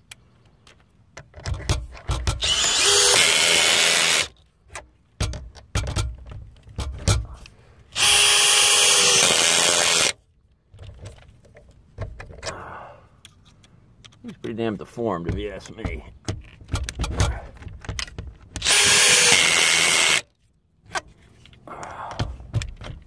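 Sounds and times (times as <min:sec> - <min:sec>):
power drill running: 0:02.4 - 0:04.3, 0:07.9 - 0:10.2, 0:18.6 - 0:20.2
knocks and clicks: 0:15.2 - 0:19.0.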